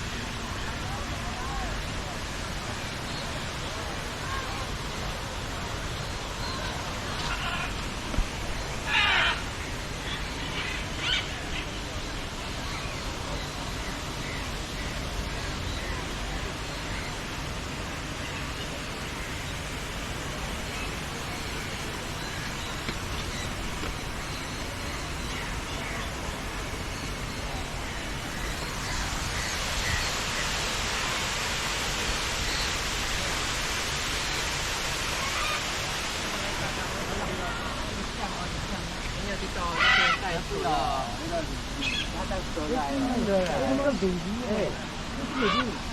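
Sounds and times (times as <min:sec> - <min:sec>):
rushing background hiss: 0:00.0 - 0:45.9.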